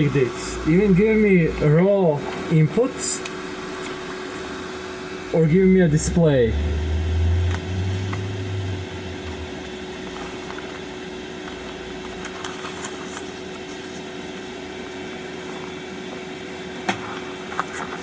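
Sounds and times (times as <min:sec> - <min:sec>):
low rumble: 0:05.3 - 0:11.0.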